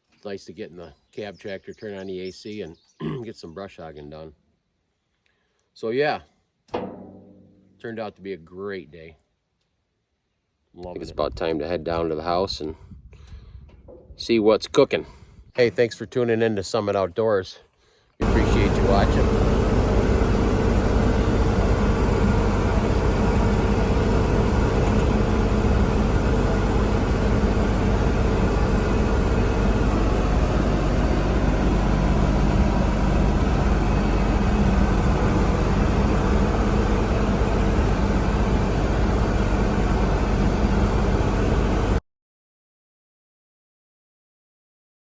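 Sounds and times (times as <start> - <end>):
tractor diesel engine humming: 18.2 - 42.0.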